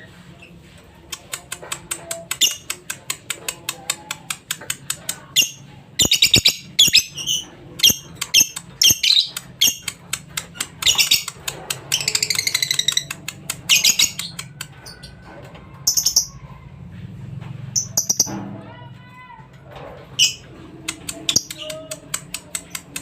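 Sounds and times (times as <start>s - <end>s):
lovebird chattering chirps: 5.3s - 10.0s, 10.8s - 15.0s, 15.9s - 16.4s, 17.8s - 18.3s.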